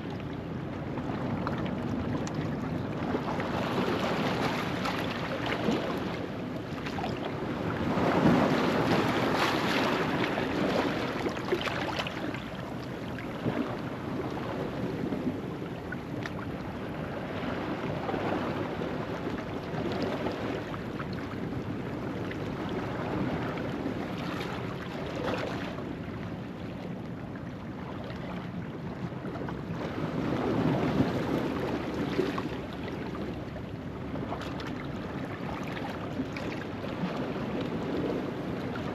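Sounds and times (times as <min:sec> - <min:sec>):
ocean waves on rocky shore: 0:03.3 - 0:20.6.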